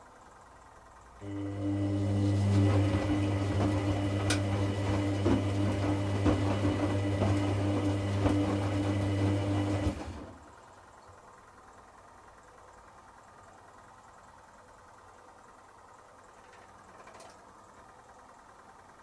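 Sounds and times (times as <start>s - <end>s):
washing machine hum: 0.0s - 19.0s.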